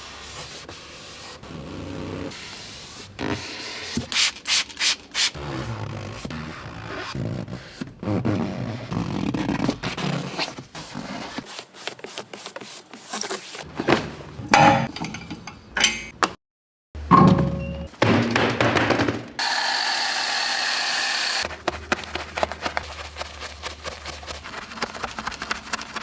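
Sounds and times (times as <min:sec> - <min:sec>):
scrubbing wet car bodywork: 0:21.3 - 0:26.0.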